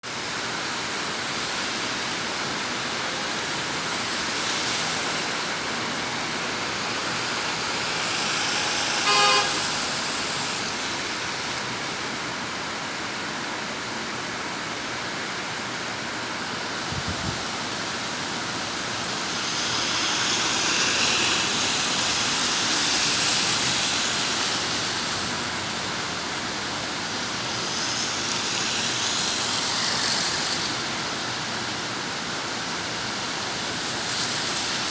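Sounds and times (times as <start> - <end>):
heavy rain pouring: 0.1 - 34.9
vehicle horn tooting: 8.9 - 10.1.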